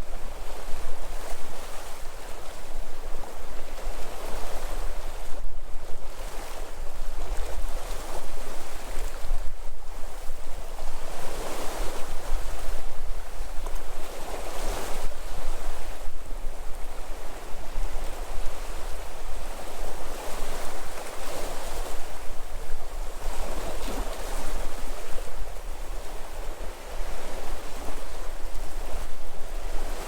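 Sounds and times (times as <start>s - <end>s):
wind rumble on microphone: 0.0s - 30.0s
sea waves breaking on shore: 10.1s - 30.0s.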